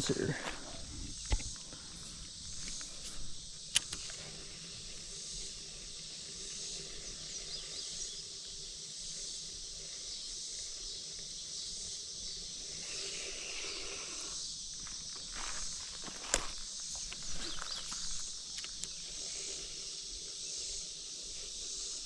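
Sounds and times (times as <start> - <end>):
high-pitched outdoor hiss: 0.0 - 22.0
sharp click: 3.7 - 4.2.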